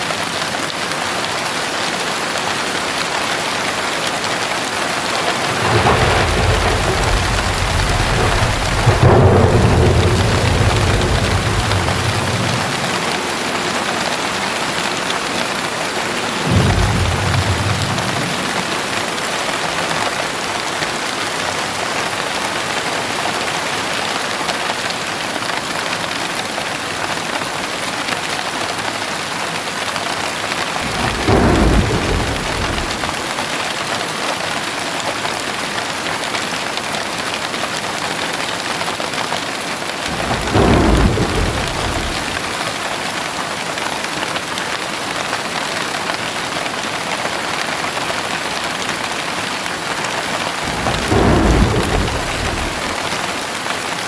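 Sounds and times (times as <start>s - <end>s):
heavy rain falling: 0.0s - 54.0s
low rumbles of thunder: 4.6s - 20.5s, 30.7s - 33.4s, 40.0s - 43.0s, 50.1s - 53.6s.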